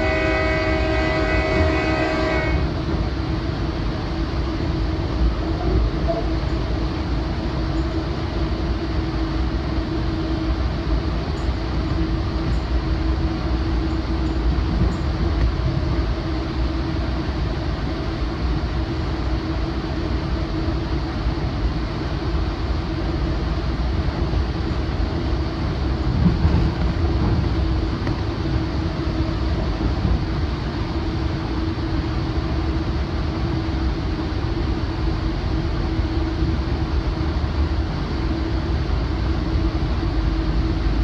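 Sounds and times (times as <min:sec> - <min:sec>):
train wheels rumbling: 0:00.0 - 0:41.0.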